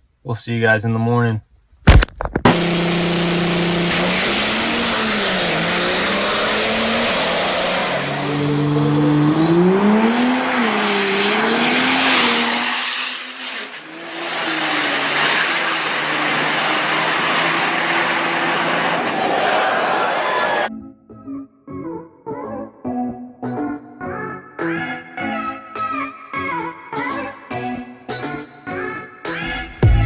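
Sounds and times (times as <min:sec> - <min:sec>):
diesel truck engine under load: 0:02.5 - 0:20.7
high turbo whistle: 0:02.5 - 0:20.7.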